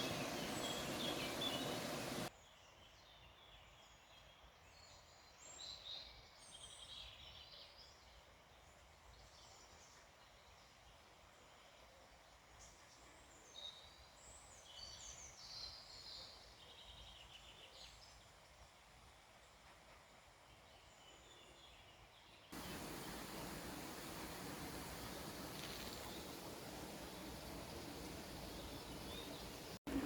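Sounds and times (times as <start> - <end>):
birds chirping: 0.0 - 2.3, 22.6 - 30.0
steady rushing noise: 0.0 - 2.3, 22.6 - 30.0.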